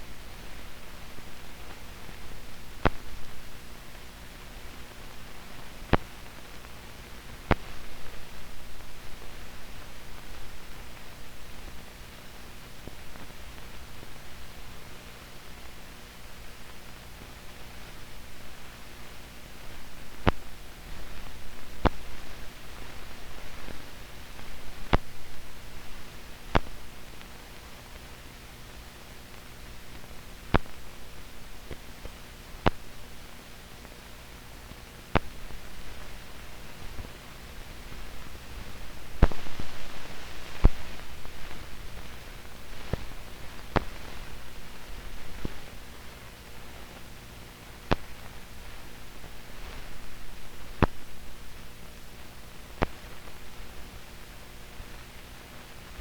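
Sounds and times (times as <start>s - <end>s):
film soundtrack hiss and hum: 0.0s - 56.0s
sharp pops and crackles: 1.7s - 8.4s, 19.7s - 32.9s, 33.7s - 51.7s, 52.6s - 56.0s.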